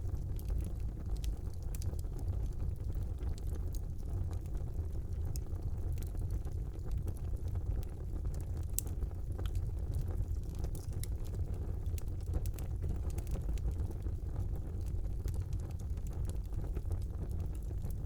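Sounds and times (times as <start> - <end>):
burning logs crackling and popping: 0.0 - 18.0
fire flames rumbling: 0.0 - 18.0.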